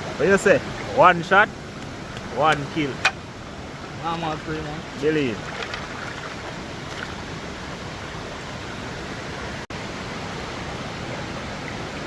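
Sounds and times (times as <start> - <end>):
flowing river water: 0.0 - 12.0.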